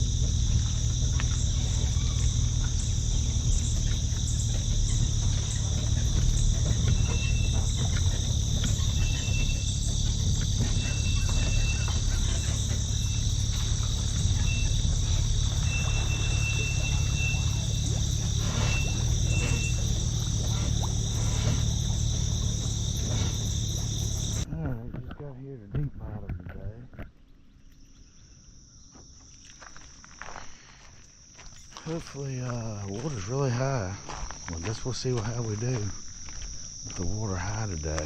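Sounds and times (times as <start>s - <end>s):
low steady rumble: 0.0s - 26.8s
crickets and insects chirping: 0.0s - 38.0s.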